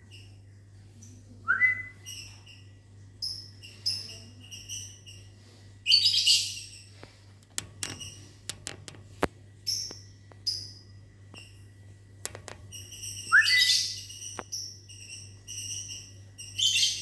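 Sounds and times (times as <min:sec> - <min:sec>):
sharp clicks: 0:07.0 - 0:10.0, 0:12.2 - 0:12.8.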